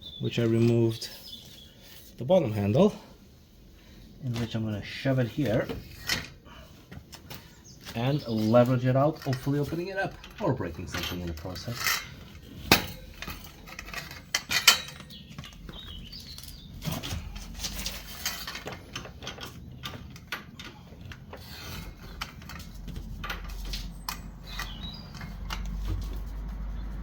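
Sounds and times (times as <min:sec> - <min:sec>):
metal clanks and scrapes: 0:07.2 - 0:27.0.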